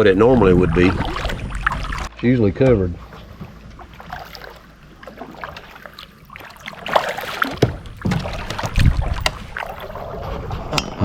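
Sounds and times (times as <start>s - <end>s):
paddle splashing in water: 0.0s - 11.0s
sharp knocks: 7.4s - 9.4s.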